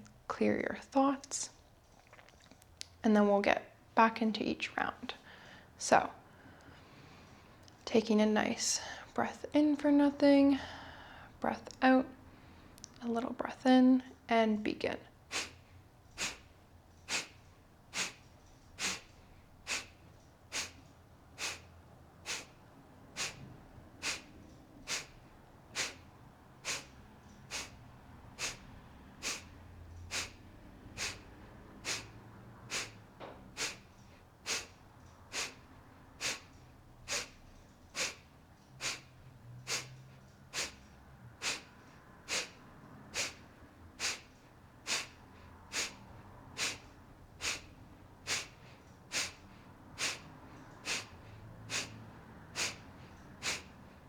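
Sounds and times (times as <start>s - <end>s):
sharp forced exhales through nose: 15.3s - 54.0s.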